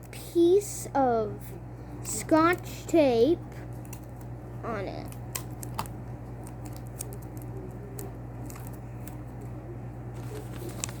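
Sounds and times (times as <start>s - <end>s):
tape clicking and crinkling: 3.6s - 11.0s.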